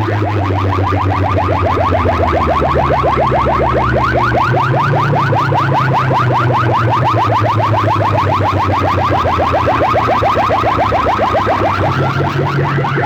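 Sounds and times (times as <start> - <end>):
electronic siren chirps: 0.0 - 13.0
low electronic drone: 0.0 - 13.0.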